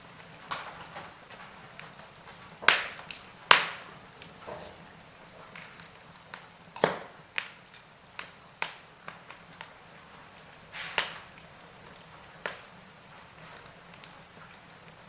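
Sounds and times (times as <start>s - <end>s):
wood fire crackling: 0.0s - 15.0s
faint hiss: 9.9s - 11.4s.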